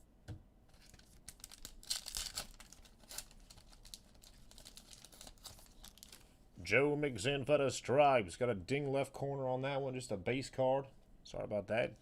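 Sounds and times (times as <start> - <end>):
wrapper crinkling and tearing: 0.7 - 6.3.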